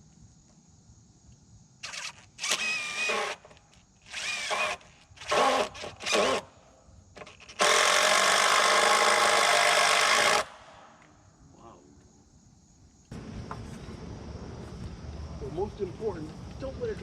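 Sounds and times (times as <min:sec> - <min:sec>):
power drill running: 0:01.8 - 0:03.5, 0:04.1 - 0:06.5, 0:07.5 - 0:10.5.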